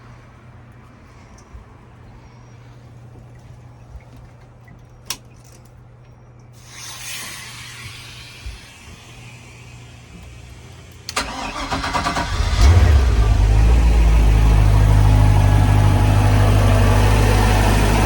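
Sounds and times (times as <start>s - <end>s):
steady hiss: 6.6s - 11.0s
low hum: 7.8s - 18.0s
boat engine starter cranking: 11.1s - 13.8s
boat engine running low: 12.7s - 18.0s.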